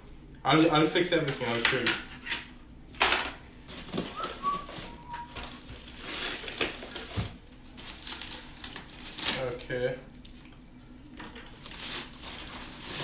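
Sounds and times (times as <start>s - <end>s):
packaging handling knocks and rustles: 1.2s - 9.8s
faint whistle-like tone: 4.1s - 5.5s.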